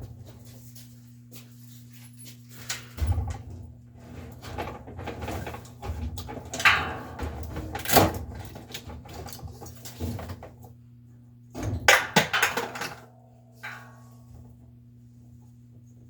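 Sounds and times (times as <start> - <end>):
low steady hum: 0.0 - 16.0
tools clattering and knocking: 2.2 - 10.7, 11.6 - 14.6.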